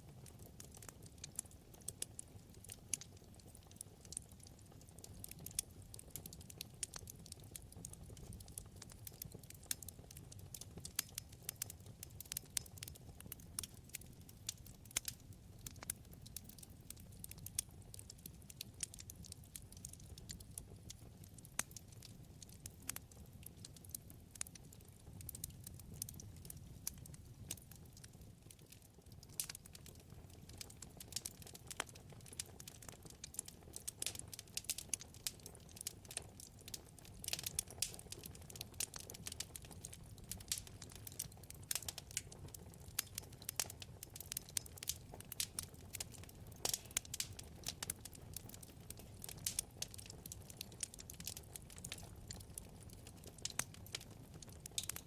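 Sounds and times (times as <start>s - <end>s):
wood fire crackling in fireplace: 0.0s - 55.0s.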